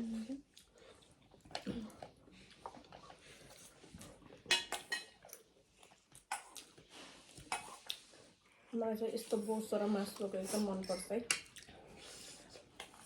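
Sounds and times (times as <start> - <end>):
faint chewing: 0.0 - 13.0.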